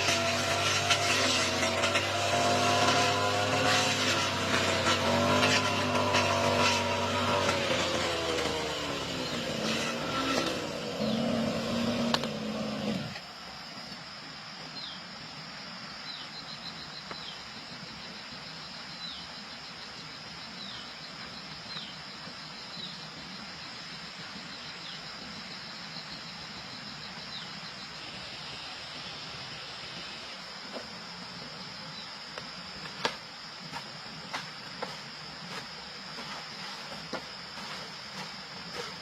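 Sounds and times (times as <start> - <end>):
lawn mower engine running: 0.0 - 13.2
steady high hiss: 10.4 - 39.0.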